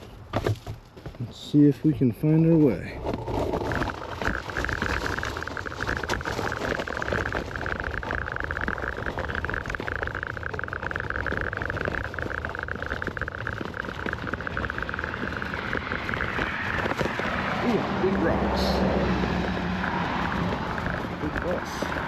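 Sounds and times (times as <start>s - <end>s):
wind and road noise rumble: 0.0s - 22.0s
scooter motor whine: 9.3s - 22.0s.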